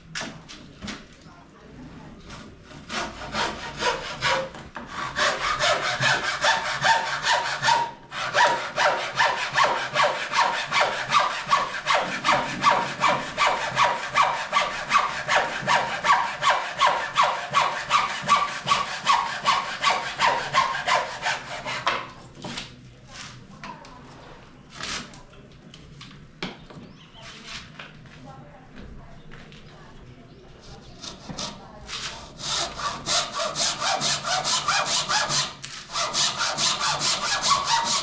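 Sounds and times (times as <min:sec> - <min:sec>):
hand saw cutting: 0:02.3 - 0:22.1, 0:31.0 - 0:38.0.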